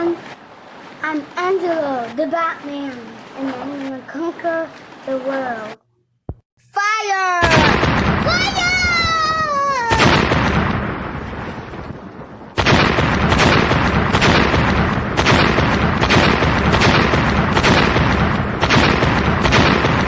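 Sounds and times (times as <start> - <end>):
cannon booms: 7.4 - 8.8, 9.9 - 20.0
explosion: 7.5 - 9.2, 9.9 - 20.0.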